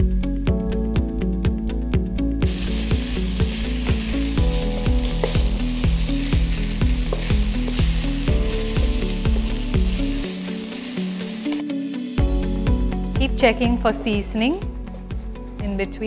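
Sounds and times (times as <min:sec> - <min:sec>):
background music with a beat: 0:00.0 - 0:16.0
meat sizzling in a pan: 0:02.4 - 0:11.7
wooden spatula stirring: 0:02.5 - 0:09.8.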